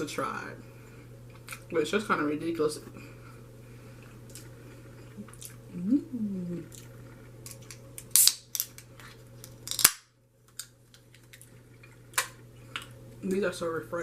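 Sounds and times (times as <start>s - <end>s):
person humming: 5.7s - 6.8s
crisp crunching while chewing: 6.6s - 13.0s.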